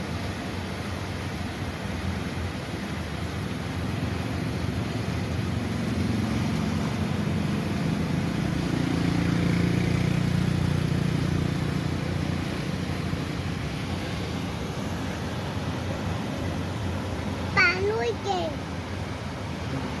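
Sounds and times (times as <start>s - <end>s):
motor engine passing: 4.6s - 18.6s.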